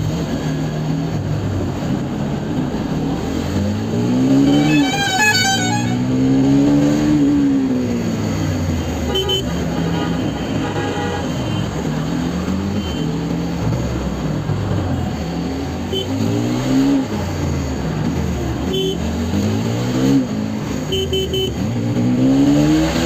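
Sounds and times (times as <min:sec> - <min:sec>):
vehicle horn honking: 0:04.4 - 0:06.1, 0:09.1 - 0:11.7, 0:18.7 - 0:19.0, 0:20.9 - 0:21.6
motorcycle engine revving: 0:11.8 - 0:23.0.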